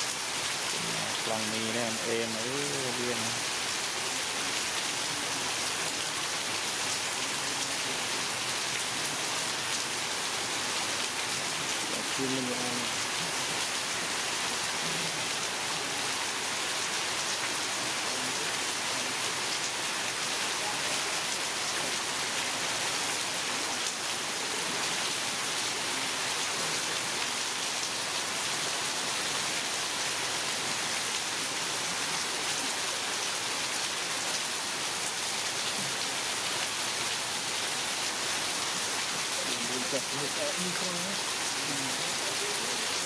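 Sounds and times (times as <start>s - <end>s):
heavy rain: 0.0s - 43.0s.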